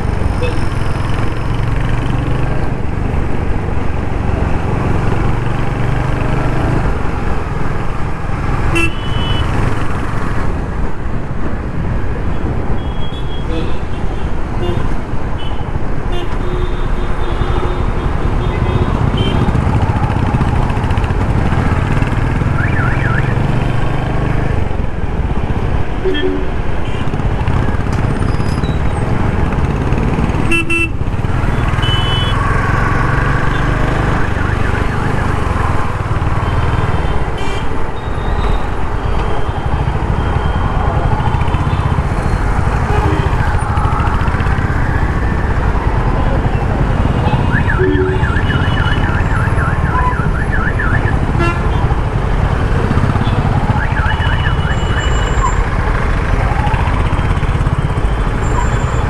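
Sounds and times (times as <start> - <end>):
road noise: 0.0 - 59.0
car horn toots: 8.6 - 9.6, 12.8 - 19.7, 26.0 - 27.2, 30.3 - 34.2, 41.6 - 43.6, 47.0 - 52.0
motorcycle engine running: 17.6 - 24.3, 39.7 - 59.0.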